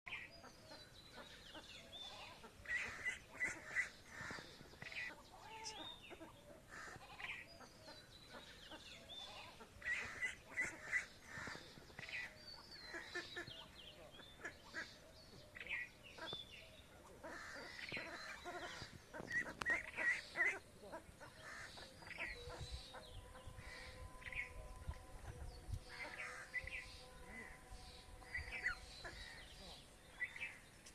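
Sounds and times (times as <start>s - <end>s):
ducks quacking: 1.2s - 7.3s, 8.3s - 15.0s, 17.0s - 24.0s
ducklings peeping: 17.2s - 24.6s.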